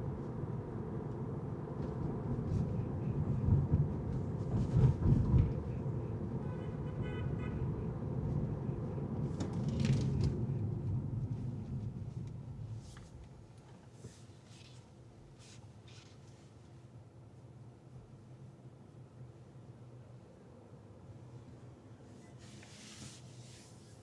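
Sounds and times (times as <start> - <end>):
road and engine rumble: 0.0 - 16.3.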